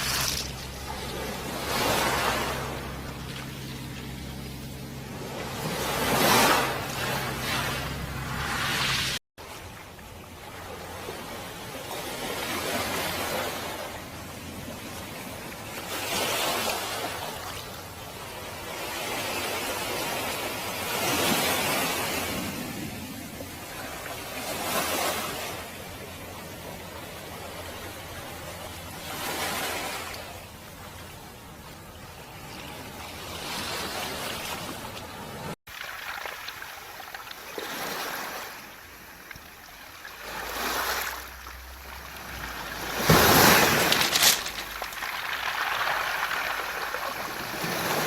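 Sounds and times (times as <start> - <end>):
waves washing over pebbles: 0.0 - 9.6, 35.7 - 48.0.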